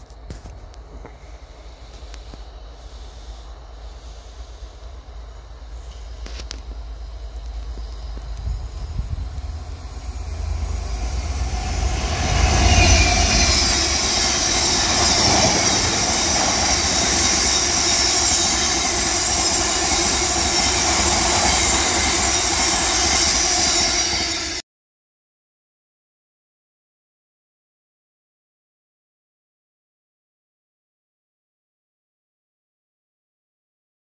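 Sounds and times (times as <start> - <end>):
freight train passing: 0.0 - 24.6
wheels rumbling on rails: 0.0 - 24.6.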